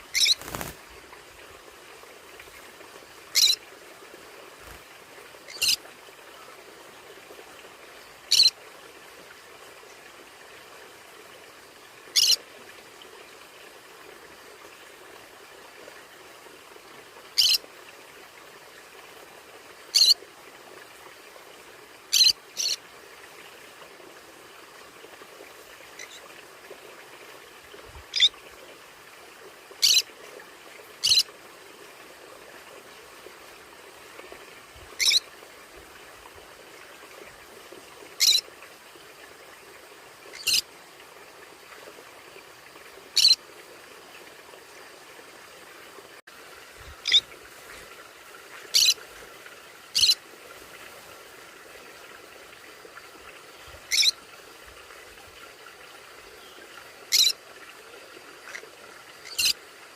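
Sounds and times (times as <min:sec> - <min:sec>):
steady background hiss: 0:00.0 - 0:59.9
parrot chirping calls: 0:00.1 - 0:00.6, 0:03.3 - 0:03.6, 0:05.5 - 0:05.8, 0:08.3 - 0:08.5, 0:17.4 - 0:17.6, 0:29.8 - 0:30.0, 0:31.0 - 0:31.2, 0:35.0 - 0:35.2, 0:38.2 - 0:38.4, 0:40.4 - 0:40.6, 0:43.2 - 0:43.4, 0:47.0 - 0:47.2, 0:48.7 - 0:49.0, 0:50.0 - 0:50.2, 0:53.9 - 0:54.1, 0:57.1 - 0:57.4, 0:59.2 - 0:59.6.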